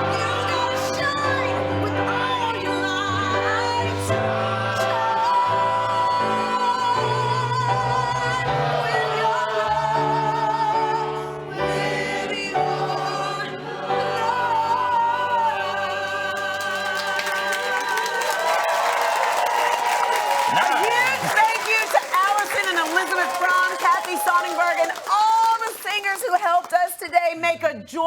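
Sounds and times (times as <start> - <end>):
chorus singing slow song: 0.0 - 19.0.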